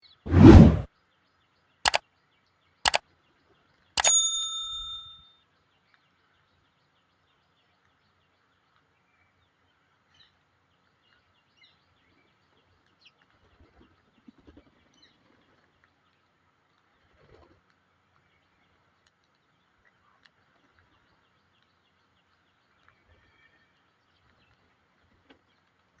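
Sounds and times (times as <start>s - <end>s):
metallic ding: 4.0s - 5.3s.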